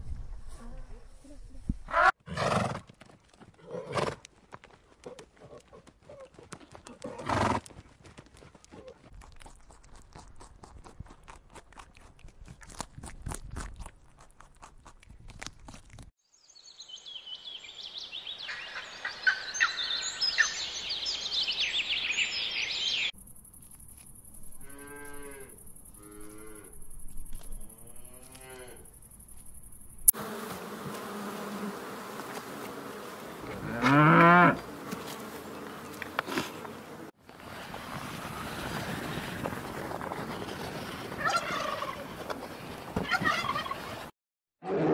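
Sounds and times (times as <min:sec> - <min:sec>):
high chirping: 0:16.6 - 0:23.2
cattle mooing: 0:27.9 - 0:28.9, 0:33.4 - 0:34.7.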